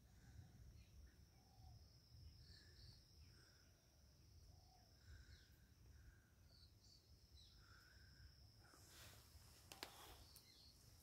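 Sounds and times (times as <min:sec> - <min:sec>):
bird calls: 0:08.8 - 0:11.0.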